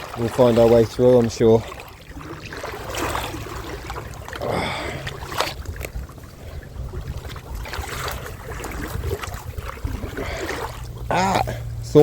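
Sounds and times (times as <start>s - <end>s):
water sloshing around legs: 0.0s - 12.0s
wind rumble on microphone: 2.1s - 11.1s.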